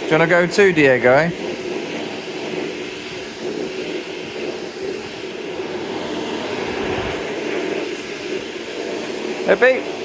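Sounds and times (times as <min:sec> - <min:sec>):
vacuum cleaner running: 0:00.0 - 0:10.0.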